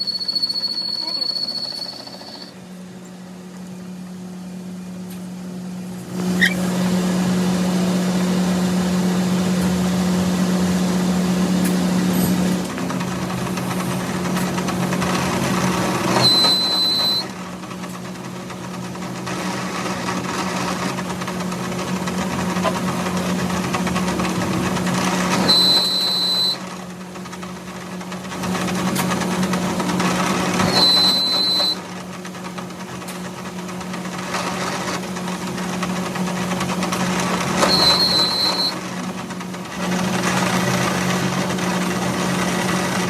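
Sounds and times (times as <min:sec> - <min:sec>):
high squeal: 0:00.0 - 0:02.6, 0:06.3 - 0:06.7, 0:16.1 - 0:17.3, 0:25.5 - 0:26.6, 0:30.6 - 0:31.8, 0:37.6 - 0:38.8
workshop machine humming: 0:00.0 - 0:43.0.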